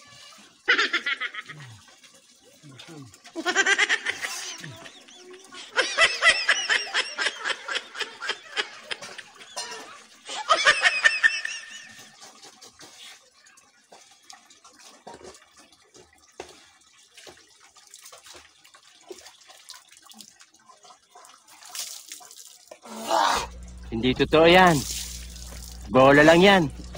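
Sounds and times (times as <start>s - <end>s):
water splashing and dripping: 0.0s - 26.9s
high-pitched laughter: 0.6s - 1.8s, 3.4s - 12.1s.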